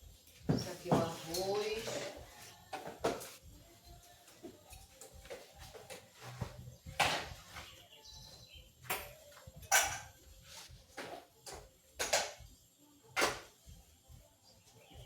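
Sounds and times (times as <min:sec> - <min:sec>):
containers and utensils clacking: 0:09.6 - 0:10.3, 0:10.9 - 0:12.4.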